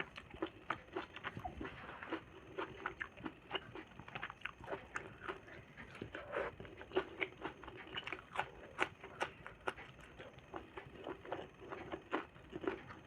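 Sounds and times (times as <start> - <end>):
person chewing and smacking lips: 0.0 - 13.0.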